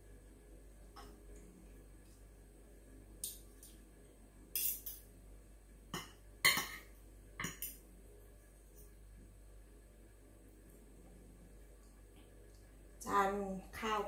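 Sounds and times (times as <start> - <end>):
cutlery clinking on plate: 4.6 - 5.0.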